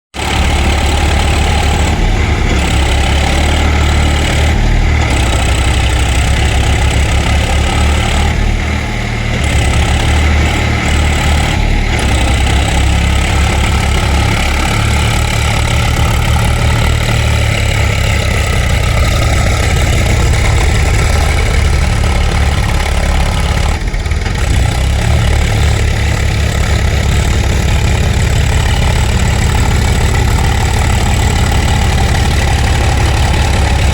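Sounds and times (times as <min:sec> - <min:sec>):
tractor engine running: 0:00.1 - 0:33.9.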